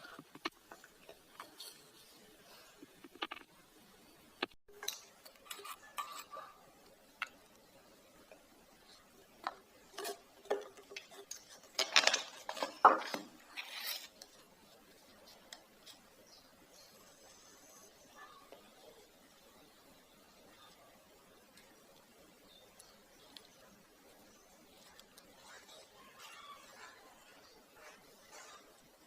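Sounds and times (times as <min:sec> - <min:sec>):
clicks and scraping: 0:00.0 - 0:02.1, 0:02.7 - 0:03.6, 0:04.4 - 0:07.6, 0:09.4 - 0:16.1.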